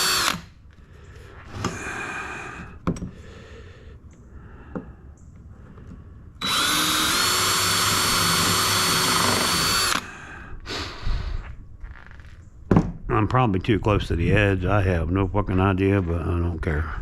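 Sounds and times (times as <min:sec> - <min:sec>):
power drill drilling: 0:00.0 - 0:00.5, 0:06.4 - 0:10.1.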